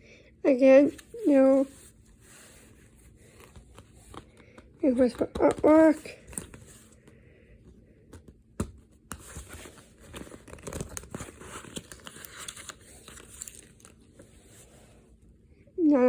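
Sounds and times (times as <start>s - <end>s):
plastic packaging crinkling: 9.2s - 14.1s.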